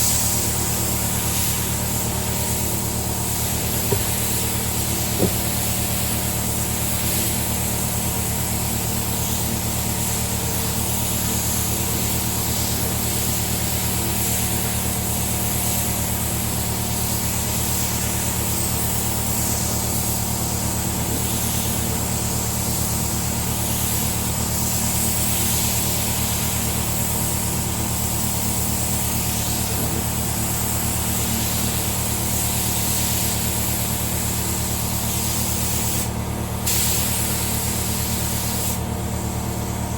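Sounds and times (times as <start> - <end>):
air compressor running: 0.0 - 39.9
spray gun hissing: 0.1 - 7.4, 30.5 - 34.4, 35.0 - 38.9.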